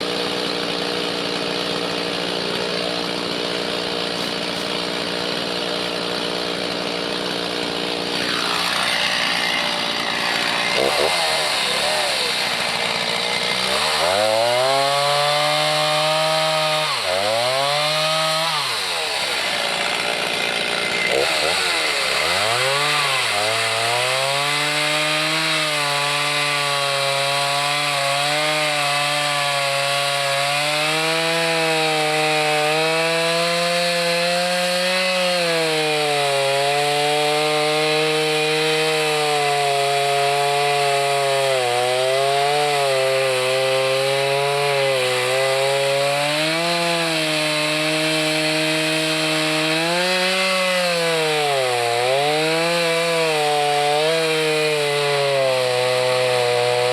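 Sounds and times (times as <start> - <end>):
chainsaw cutting wood: 0.0 - 56.9.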